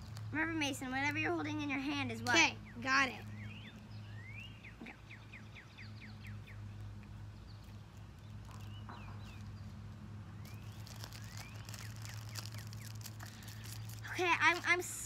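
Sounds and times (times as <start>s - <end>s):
birds whistling descending notes: 2.6s - 6.7s.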